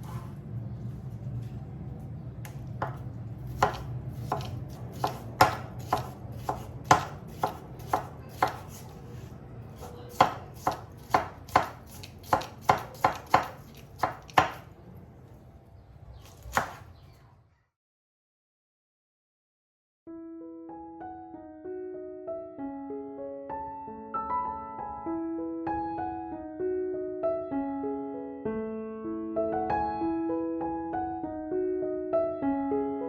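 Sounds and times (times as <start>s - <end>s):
knife chopping on cutting board: 2.8s - 8.9s, 9.8s - 14.7s, 16.3s - 16.9s.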